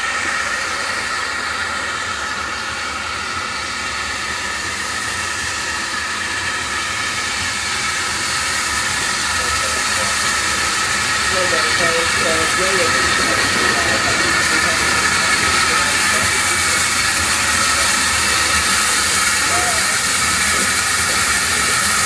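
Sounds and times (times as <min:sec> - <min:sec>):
steam locomotive hissing: 0:00.0 - 0:22.0.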